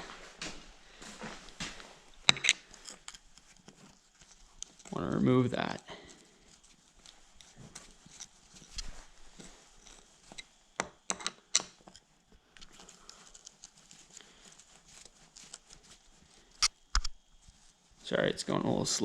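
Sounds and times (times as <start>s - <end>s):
screwdriver clicking on metal screws: 2.2s - 3.5s.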